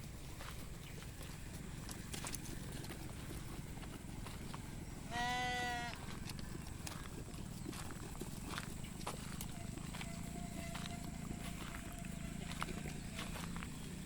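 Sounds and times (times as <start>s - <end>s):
sheep bleating: 5.1s - 6.0s.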